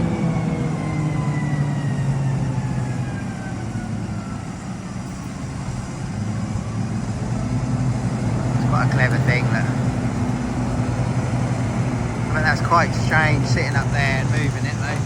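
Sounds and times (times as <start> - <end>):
large diesel engine running: 0.0 - 15.0.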